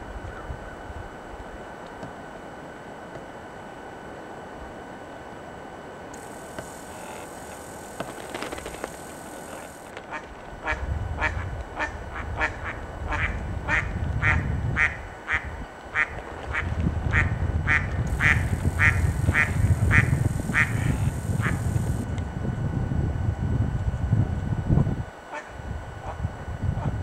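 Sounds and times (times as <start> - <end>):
bird quack-like calls: 10.1 - 22.0.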